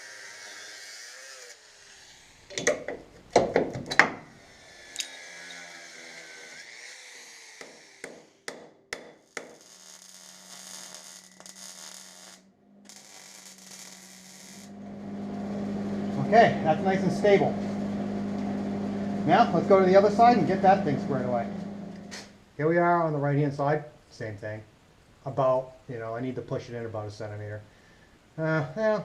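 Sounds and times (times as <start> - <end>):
steady low hum: 12.4 - 23.4.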